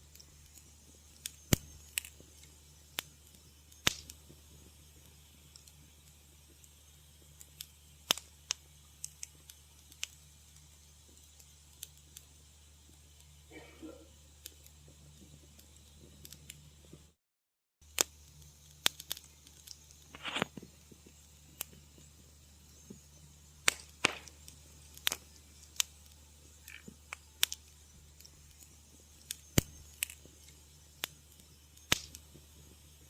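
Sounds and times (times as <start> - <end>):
faint low hum: 0.0 - 17.2
wood fire crackling: 0.0 - 17.2, 17.8 - 33.0.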